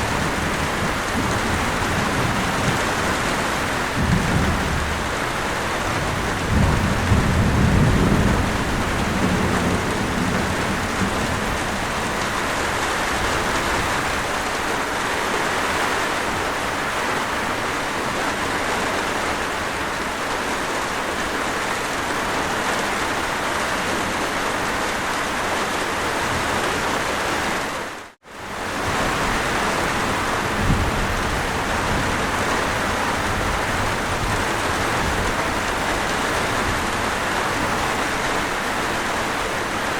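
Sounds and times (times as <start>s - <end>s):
thunder rumbling: 0.0s - 14.4s, 28.6s - 39.1s
heavy rainfall: 0.0s - 39.9s.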